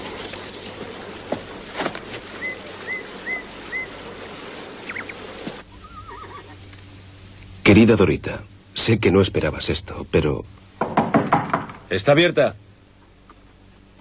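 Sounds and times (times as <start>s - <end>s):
steady hiss: 0.0s - 14.0s
bird chirping: 2.3s - 7.6s.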